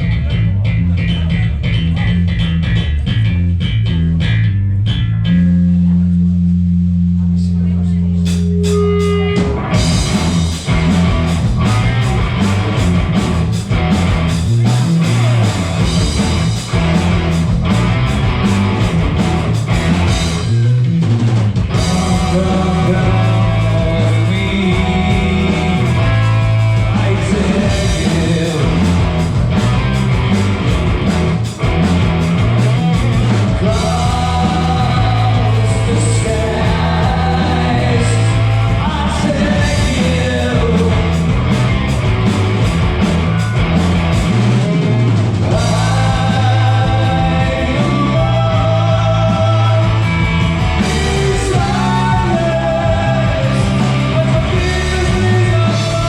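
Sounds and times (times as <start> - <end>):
live rock band playing: 8.2 - 56.0
person singing: 21.8 - 29.1, 33.3 - 41.2, 45.5 - 50.2, 50.8 - 56.0.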